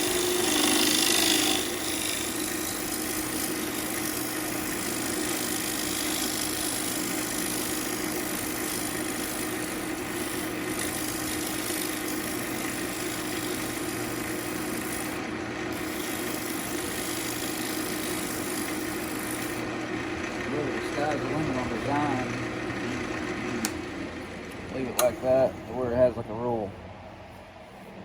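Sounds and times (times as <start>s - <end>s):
tool hissing on spinning wood: 0.0s - 23.4s
wood lathe motor hum: 0.0s - 28.0s.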